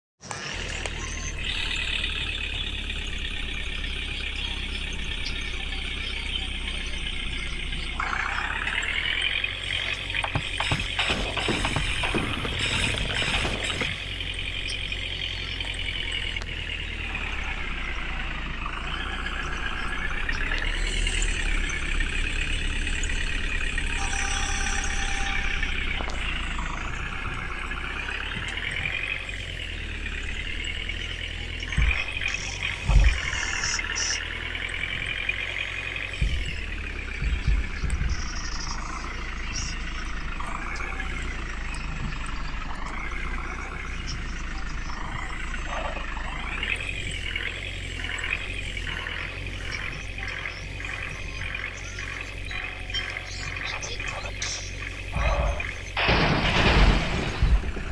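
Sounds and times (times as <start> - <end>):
truck engine running under load: 0.2 - 57.9
low thumps: 31.6 - 40.4, 55.0 - 57.9.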